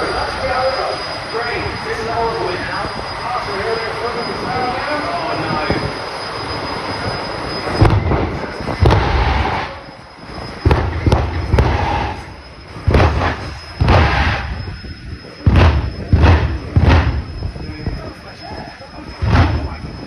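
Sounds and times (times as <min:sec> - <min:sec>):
turbine engine whining: 0:00.0 - 0:20.0
booming afterburner bursts: 0:07.6 - 0:18.0, 0:19.1 - 0:20.0.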